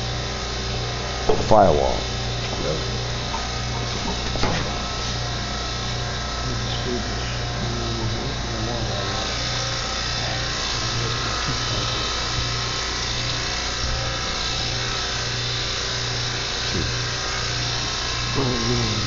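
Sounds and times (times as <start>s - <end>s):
machine whir: 0.0s - 19.0s.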